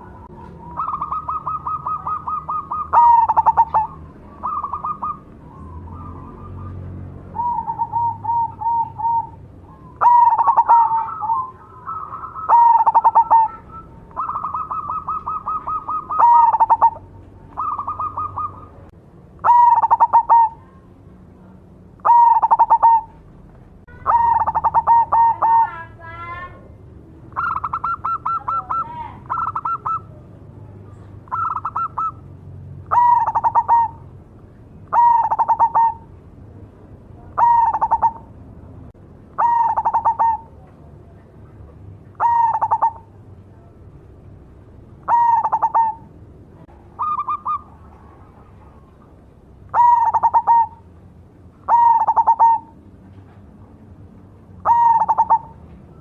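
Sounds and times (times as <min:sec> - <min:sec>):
dove cooing: 0:00.0 - 0:20.8, 0:22.0 - 0:23.2, 0:23.9 - 0:26.0, 0:27.3 - 0:30.3, 0:30.9 - 0:34.1, 0:34.9 - 0:36.1, 0:37.2 - 0:38.4, 0:39.4 - 0:41.3, 0:42.1 - 0:43.7, 0:45.0 - 0:49.1, 0:49.7 - 0:50.9, 0:51.7 - 0:52.8, 0:54.6 - 0:56.0.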